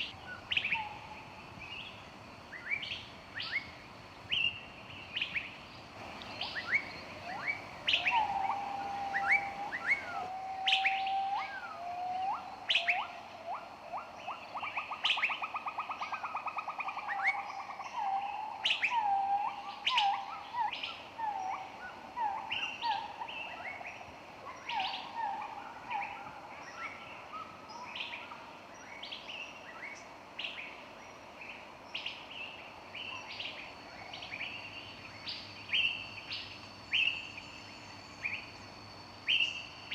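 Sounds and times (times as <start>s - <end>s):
songbirds chirping and singing: 6.0s - 24.0s.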